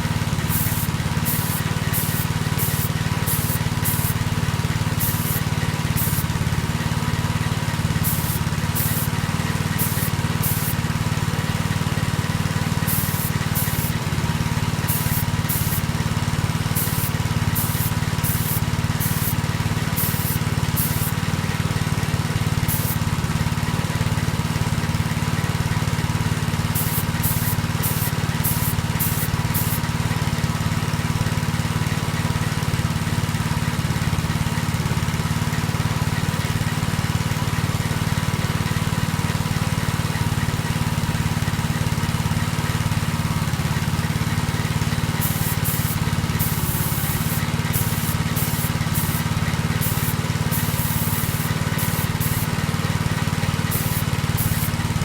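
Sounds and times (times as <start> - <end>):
small motor hum: 0.0 - 55.0
short hisses of spray: 0.4 - 6.5, 7.9 - 10.9, 12.8 - 14.0, 14.6 - 16.0, 16.7 - 21.2, 22.7 - 23.0, 26.8 - 29.9, 45.1 - 54.9.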